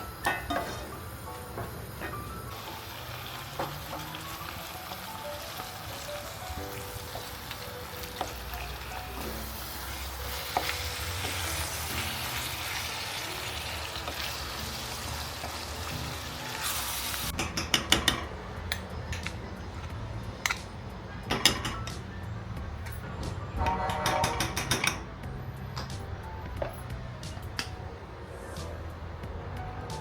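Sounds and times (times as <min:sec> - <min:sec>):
food sizzling in a frying pan: 0:00.0 - 0:17.3
utensils knocking against a pan: 0:17.3 - 0:19.4, 0:21.3 - 0:22.0, 0:23.6 - 0:25.1.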